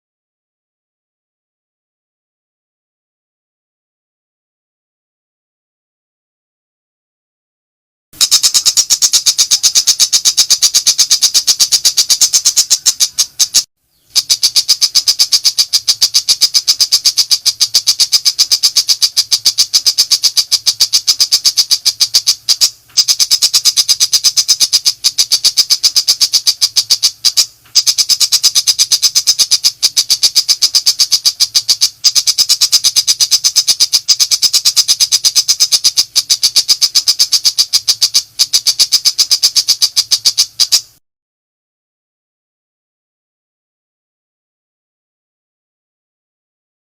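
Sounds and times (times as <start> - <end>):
bird rattling call: 8.2 - 41.0.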